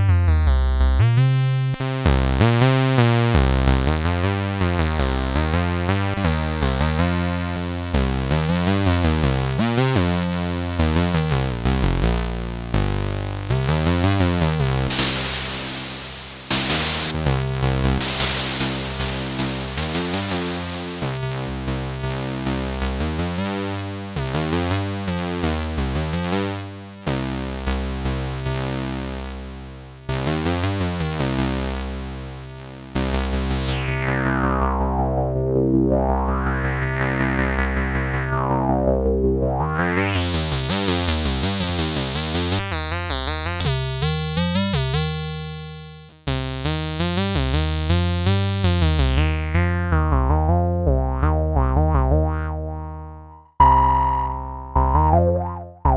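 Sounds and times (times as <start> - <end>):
synthesizer repeated notes: 14.9 - 17.2, 18.0 - 21.3.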